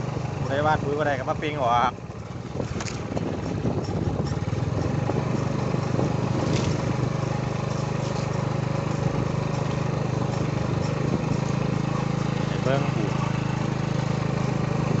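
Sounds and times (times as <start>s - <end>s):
small engine droning: 0.0s - 15.0s.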